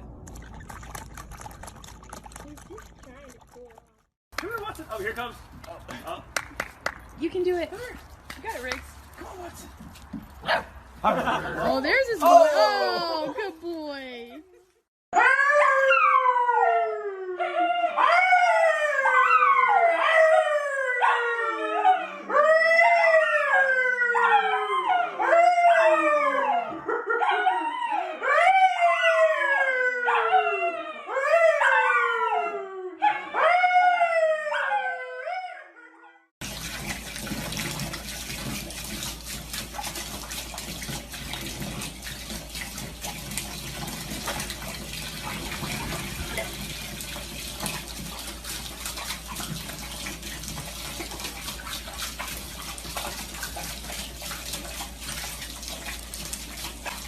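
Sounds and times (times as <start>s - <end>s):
dog howling: 15.2s - 36.0s
running water rushing: 36.4s - 57.0s.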